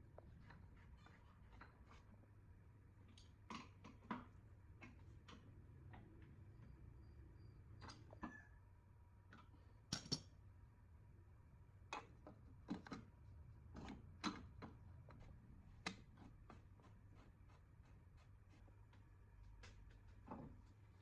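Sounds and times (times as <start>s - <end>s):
light clicks and taps of tools: 9.3s - 10.4s.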